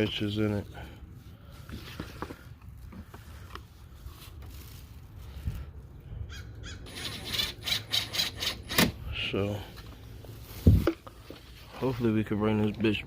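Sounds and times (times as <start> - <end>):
parrot squawking: 6.3 - 7.2.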